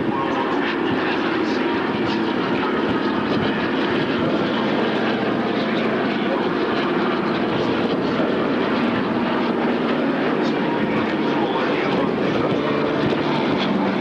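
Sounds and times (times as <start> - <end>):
aircraft engine: 0.0 - 14.0.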